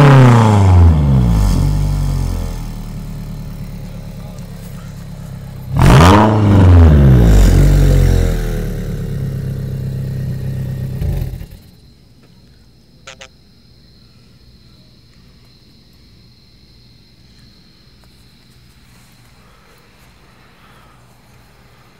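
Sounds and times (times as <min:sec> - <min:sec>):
car engine revving and idling: 0:00.0 - 0:11.8.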